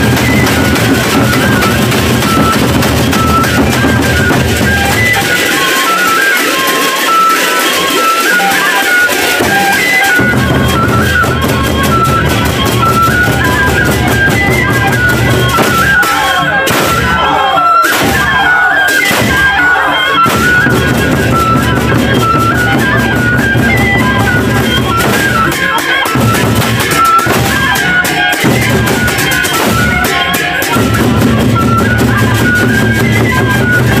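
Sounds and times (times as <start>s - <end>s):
big drums: 0.0s - 34.0s
wind instrument melody: 0.0s - 34.0s.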